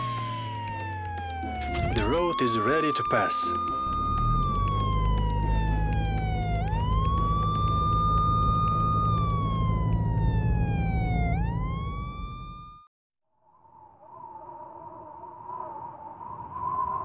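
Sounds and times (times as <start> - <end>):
police siren wailing: 0.0 - 12.9
low vehicle rumble: 3.6 - 12.8.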